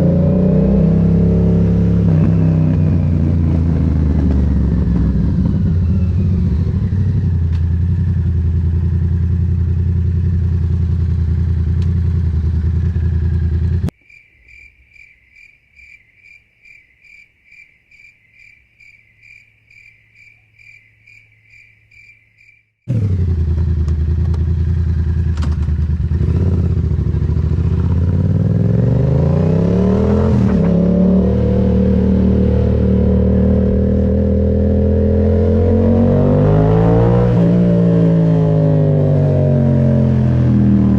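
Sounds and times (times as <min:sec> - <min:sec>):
motorcycle engine running: 0:00.0 - 0:13.9, 0:22.9 - 0:40.9
insect-like chirping: 0:14.0 - 0:22.7.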